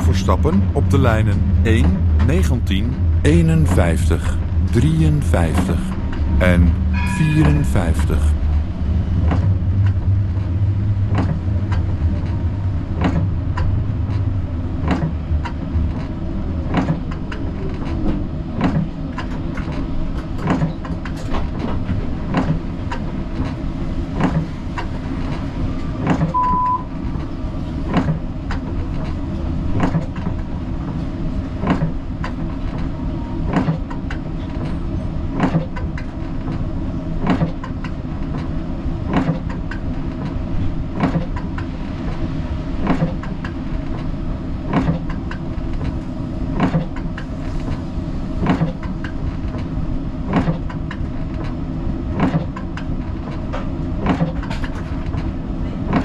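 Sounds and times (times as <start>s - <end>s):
tram rumble and hum: 0.0s - 56.0s
short high beep: 6.9s - 7.8s, 26.4s - 26.9s.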